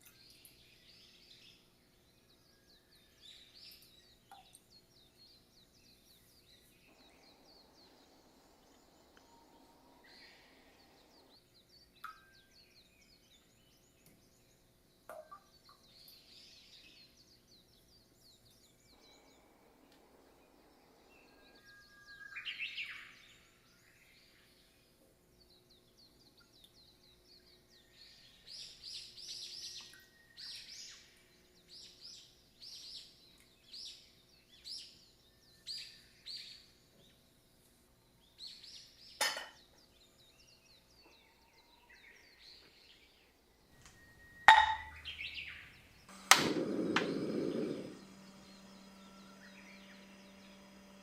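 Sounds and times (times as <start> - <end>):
birds chirping: 0.0 - 37.2, 38.0 - 51.0
steady low hum: 4.0 - 12.0, 17.0 - 22.2, 43.4 - 51.0
sharp click: 46.1 - 47.2.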